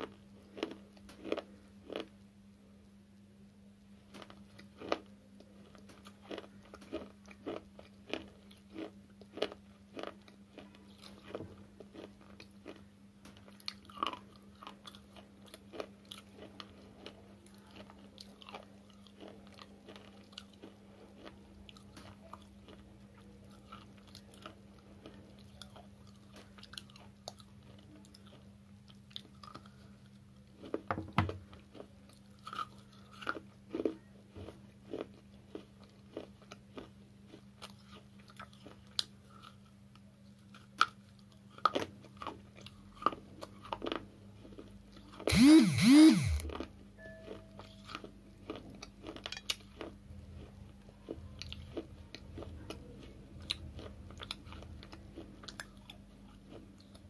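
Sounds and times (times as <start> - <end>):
crunching chewing of brittle chips: 0.0 - 2.3, 4.0 - 57.0
low hum: 45.3 - 48.0.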